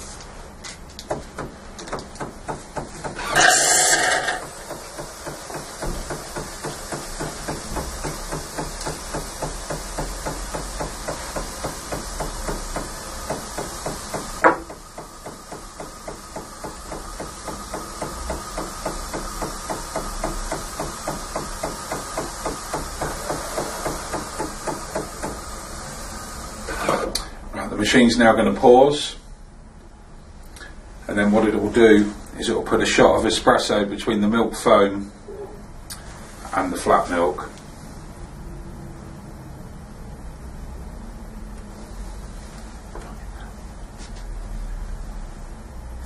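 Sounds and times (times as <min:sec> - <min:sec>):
coffee machine frothing milk: 0:03.2 - 0:27.2.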